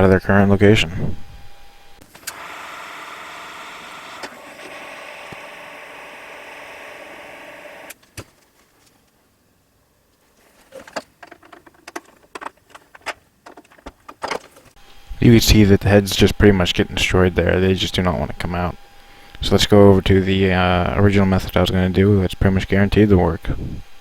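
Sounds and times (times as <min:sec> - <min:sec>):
small electric tool motor: 0:02.1 - 0:08.0.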